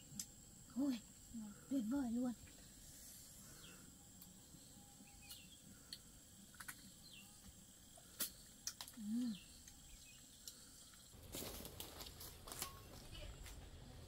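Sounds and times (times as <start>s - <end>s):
faint high bird chirps: 3.5s - 5.7s.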